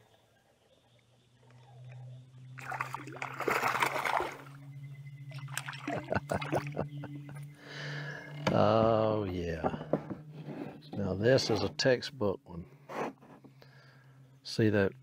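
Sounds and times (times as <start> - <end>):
steady low hum: 0.0 - 15.0
fish splashing at water surface: 2.6 - 4.6
water drips: 5.3 - 6.8.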